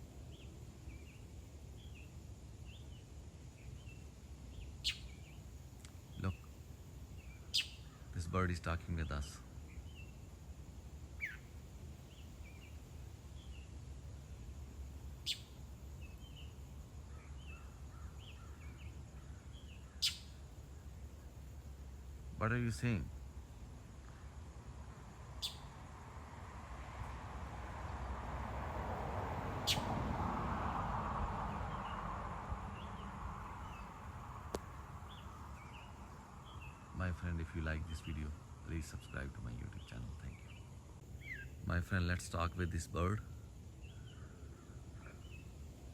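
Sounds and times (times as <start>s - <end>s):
background hiss: 0.0s - 45.9s
bird chirping: 0.3s - 10.4s, 11.0s - 14.4s, 15.1s - 24.2s, 25.2s - 25.8s, 29.6s - 30.0s, 31.5s - 32.0s, 32.6s - 45.6s
downward-sweeping bird calls: 3.6s - 6.5s, 7.1s - 10.2s, 11.1s - 13.8s, 15.2s - 21.7s, 25.3s - 25.8s, 29.6s - 30.0s, 32.6s - 34.2s, 35.0s - 45.6s.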